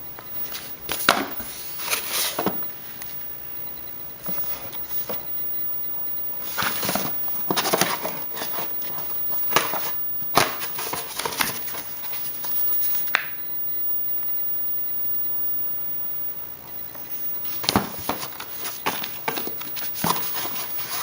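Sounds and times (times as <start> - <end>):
paper rustling and crinkling: 0.4 - 3.2, 6.4 - 13.1, 17.4 - 21.0.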